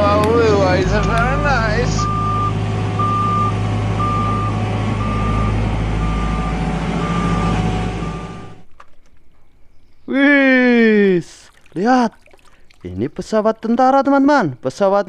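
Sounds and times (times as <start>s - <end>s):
reversing beeper: 0.0s - 8.6s.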